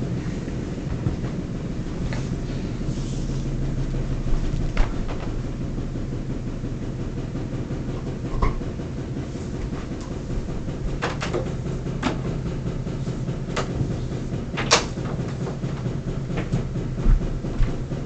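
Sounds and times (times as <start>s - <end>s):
vacuum cleaner running: 0.0s - 18.0s
sharp clicks and knocks: 9.6s - 18.0s.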